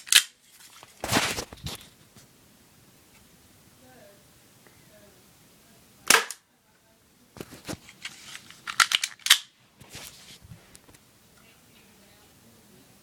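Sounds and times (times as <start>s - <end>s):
airsoft pistol firing: 6.1s - 6.4s.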